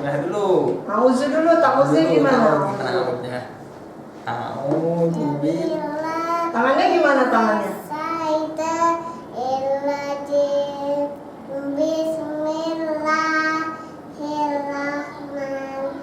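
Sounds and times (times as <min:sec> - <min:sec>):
child chanting melodic recitation: 0:05.2 - 0:06.6, 0:07.8 - 0:16.0.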